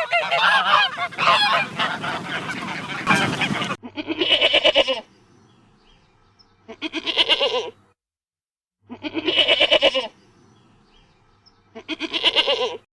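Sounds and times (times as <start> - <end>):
sheep bleating: 3.8 - 5.1, 6.7 - 7.8, 8.9 - 10.1, 11.7 - 12.8.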